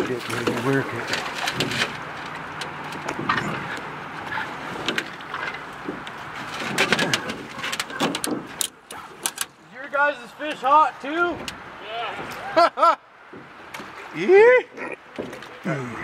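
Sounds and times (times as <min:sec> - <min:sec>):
sharp knocks and clicks: 0:04.8 - 0:09.6.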